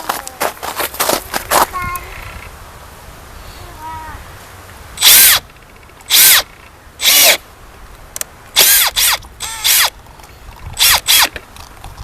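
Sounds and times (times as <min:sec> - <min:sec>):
power drill drilling glass: 0:05.0 - 0:05.4, 0:06.1 - 0:06.4, 0:07.0 - 0:07.4, 0:08.6 - 0:09.9, 0:10.8 - 0:11.3.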